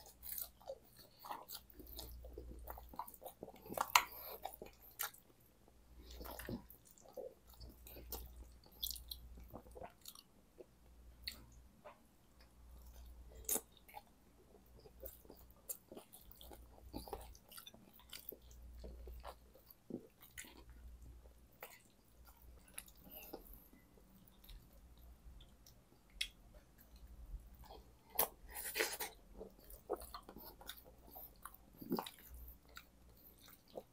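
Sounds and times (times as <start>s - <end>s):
chewing fries: 0.0s - 33.9s.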